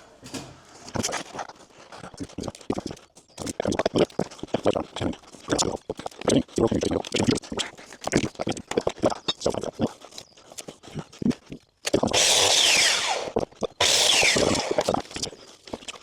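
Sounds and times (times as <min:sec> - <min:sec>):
power saw cutting wood: 0:12.1 - 0:15.0.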